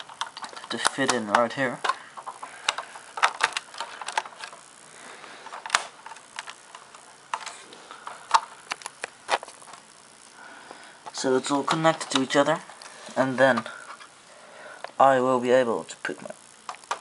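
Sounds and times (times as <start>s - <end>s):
plastic bricks clicking together: 0.0s - 4.6s.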